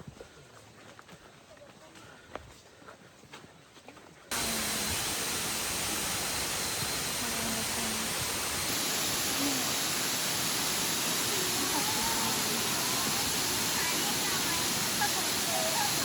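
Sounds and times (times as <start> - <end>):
waterfall rushing: 4.3 - 16.0.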